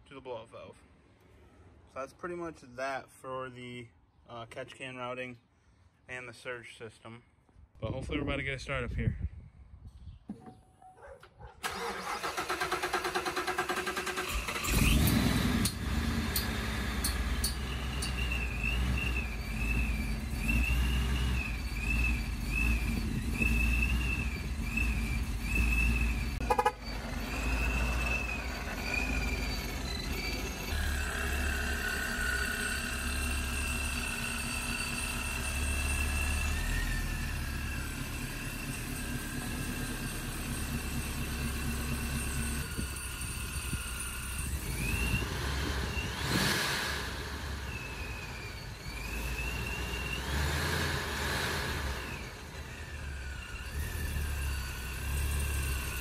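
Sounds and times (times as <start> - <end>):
car engine cranking and running: 11.6 - 56.0
thin wavering high tone: 26.9 - 37.1.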